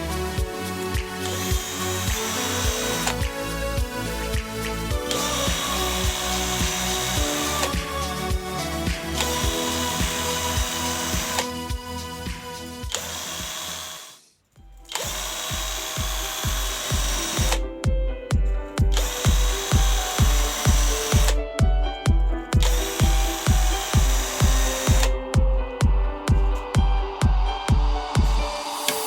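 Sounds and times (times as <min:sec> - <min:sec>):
music with thumping beat: 0:00.0 - 0:14.0, 0:14.6 - 0:29.0
power tool running: 0:01.0 - 0:11.8, 0:12.8 - 0:14.2, 0:14.9 - 0:17.6, 0:18.9 - 0:21.4, 0:22.6 - 0:25.2.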